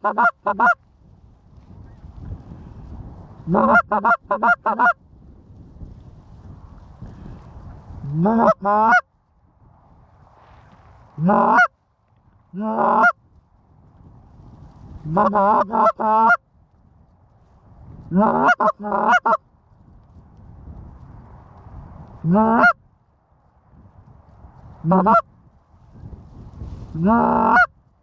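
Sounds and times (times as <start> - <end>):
goose honking: 0.0 - 0.8, 3.5 - 5.0, 8.1 - 9.0, 11.2 - 11.7, 12.6 - 13.2, 15.1 - 16.4, 18.1 - 19.4, 22.2 - 22.8, 24.8 - 25.2, 27.0 - 27.7.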